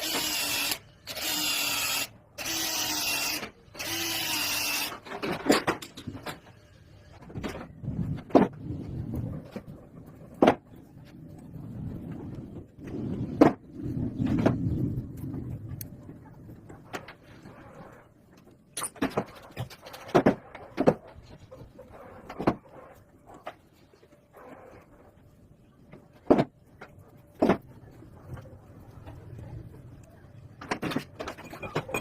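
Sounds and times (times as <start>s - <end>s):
metal parts and tools clattering: 5.0s - 6.6s, 30.7s - 32.0s
low rumble: 7.8s - 18.3s.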